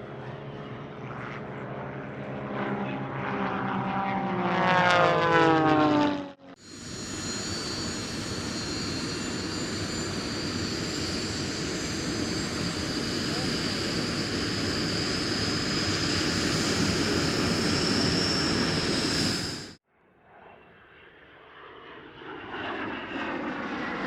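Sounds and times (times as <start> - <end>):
aircraft engine with high whine: 0.0 - 24.0
propeller aircraft flying past: 0.0 - 24.0.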